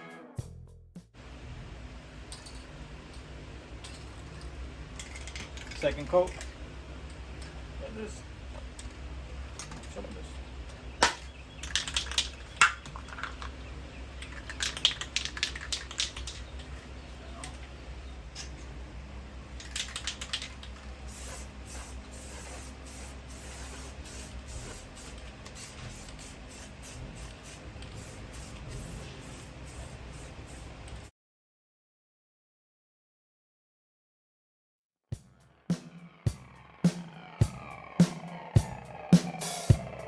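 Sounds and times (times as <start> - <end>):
spray paint hissing in bursts: 21.0 - 31.1.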